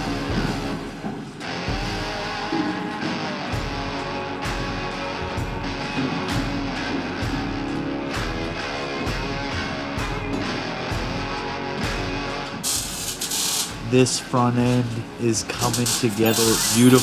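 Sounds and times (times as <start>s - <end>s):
rock music with electric guitar: 0.0s - 15.3s.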